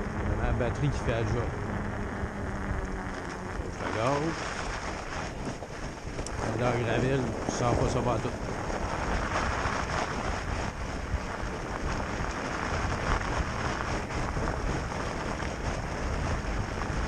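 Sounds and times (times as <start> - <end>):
tyres rolling on gravel: 0.0 - 17.0
wind buffeting microphone: 0.0 - 17.0.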